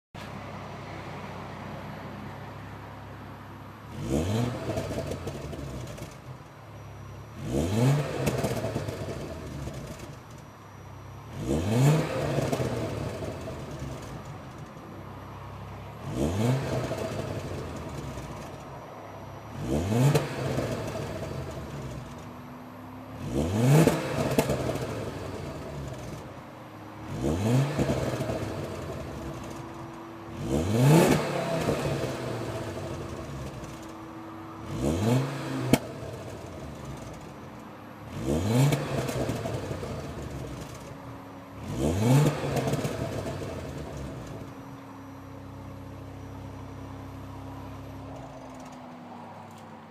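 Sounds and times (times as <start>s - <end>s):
car engine revving: 3.4s - 49.6s
exhaust pops and crackles: 4.6s - 6.5s, 27.7s - 30.0s, 31.1s - 34.0s, 35.6s - 41.0s, 48.2s - 49.6s.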